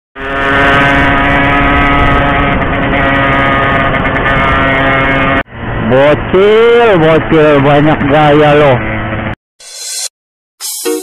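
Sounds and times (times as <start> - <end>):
two-stroke motorcycle engine revving: 0.2 - 5.5.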